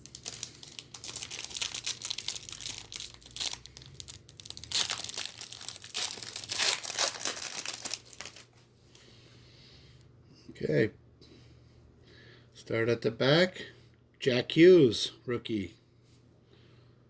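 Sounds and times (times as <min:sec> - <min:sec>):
card pack wrapper tearing: 0:00.0 - 0:08.5.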